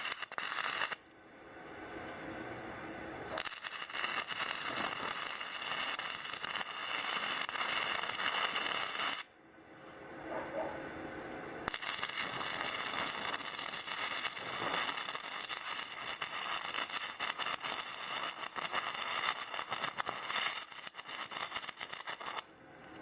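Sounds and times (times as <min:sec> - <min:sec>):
welding arc crackling: 0:00.0 - 0:01.0, 0:03.2 - 0:09.3, 0:11.6 - 0:22.5.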